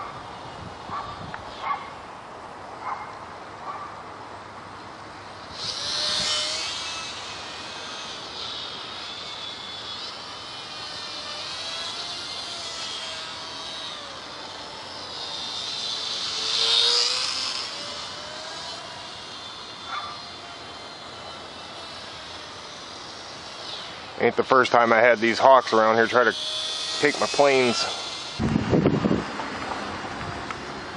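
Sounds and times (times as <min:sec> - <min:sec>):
rc plane motor whining: 0:00.0 - 0:02.0, 0:04.8 - 0:30.9.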